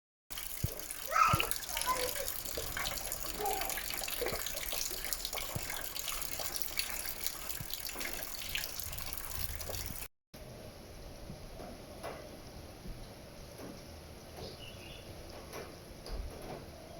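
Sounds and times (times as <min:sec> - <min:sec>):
water splashing and dripping: 0:00.3 - 0:10.1.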